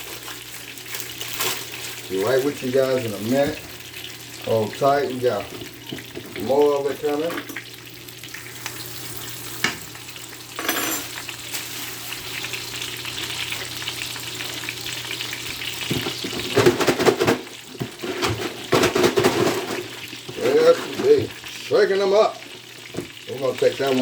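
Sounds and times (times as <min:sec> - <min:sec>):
chicken sizzling in hot oil: 0:00.0 - 0:24.0
pieces clattering in pan: 0:05.4 - 0:06.6, 0:09.5 - 0:12.6, 0:15.4 - 0:21.6.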